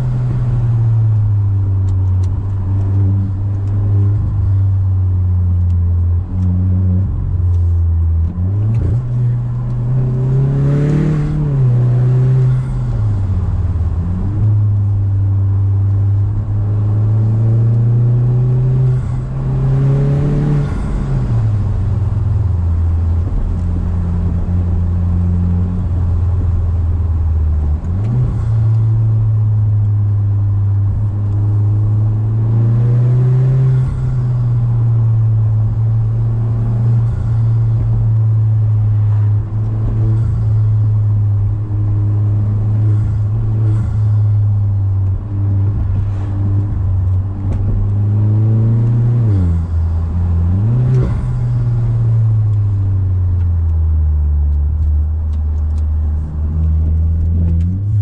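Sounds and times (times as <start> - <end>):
car engine drone from cabin: 0.0 - 58.0.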